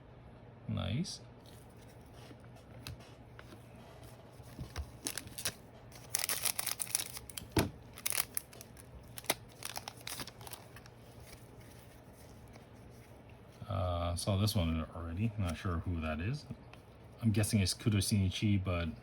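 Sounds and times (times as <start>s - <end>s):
card packaging crinkling: 4.3s - 13.2s.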